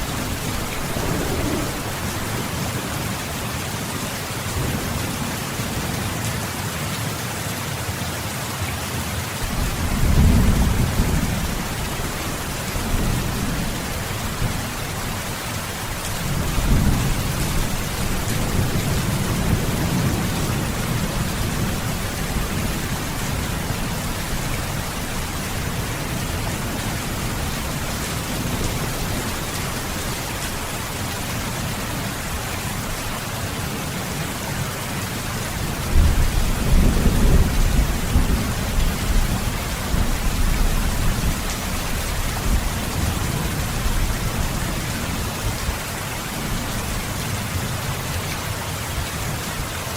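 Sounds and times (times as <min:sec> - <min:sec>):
thunder rolling: 0:00.0 - 0:03.3
heavy rain: 0:00.0 - 0:49.9.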